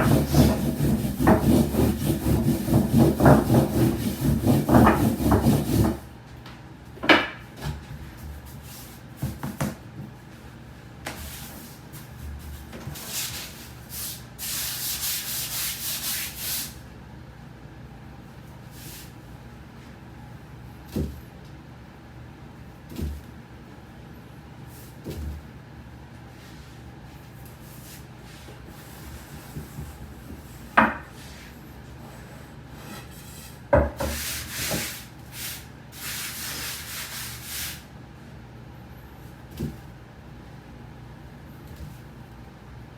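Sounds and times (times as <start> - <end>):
rolling pin rubbing over dough: 0.0 - 6.0, 26.4 - 31.6, 32.2 - 37.8.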